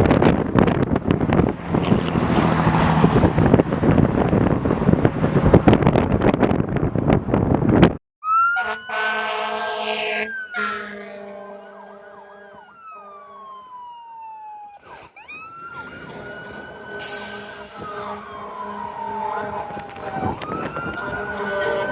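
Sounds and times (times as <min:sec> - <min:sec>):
emergency siren wailing: 0:08.2 - 0:21.9
loud horn blast: 0:08.5 - 0:13.5, 0:15.8 - 0:21.9.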